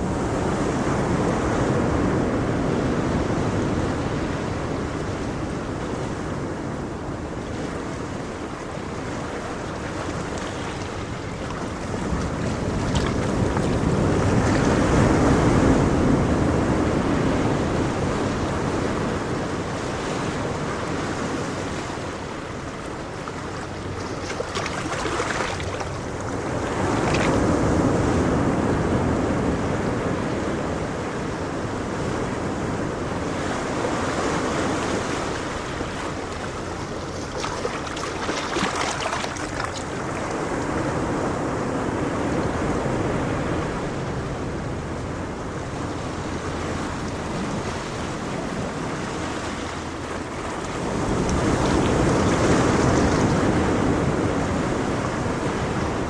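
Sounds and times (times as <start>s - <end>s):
ocean waves breaking: 0.0s - 56.0s.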